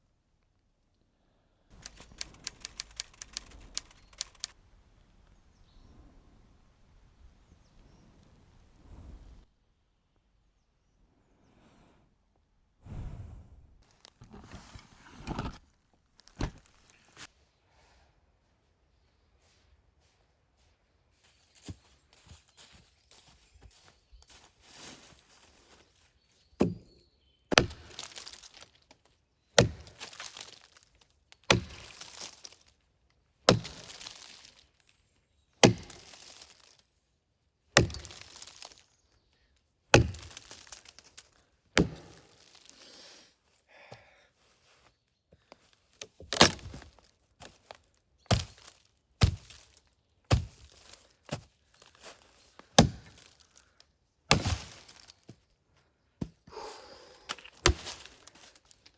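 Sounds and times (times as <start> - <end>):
firewood cracking: 1.8 - 4.6, 27.5 - 29.0, 29.6 - 32.7, 33.5 - 34.8, 35.6 - 36.8, 37.8 - 39.0, 39.9 - 42.9, 46.3 - 51.1, 52.7 - 55.2, 57.4 - 58.9.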